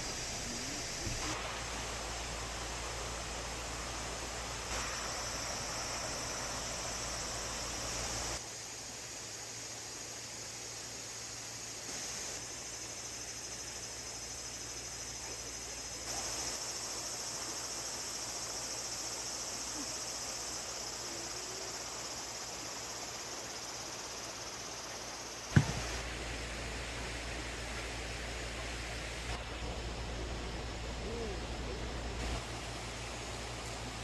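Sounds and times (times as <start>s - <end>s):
crickets trilling: 0.0s - 34.0s
sharp knock: 25.5s - 26.0s.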